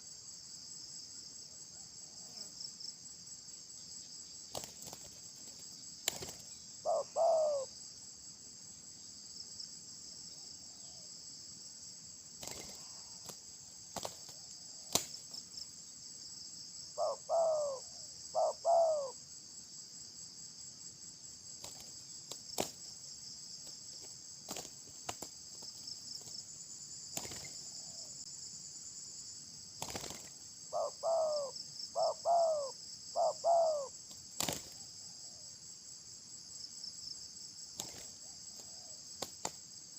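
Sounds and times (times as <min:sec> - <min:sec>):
shrill insect chorus: 0:00.0 - 0:39.9.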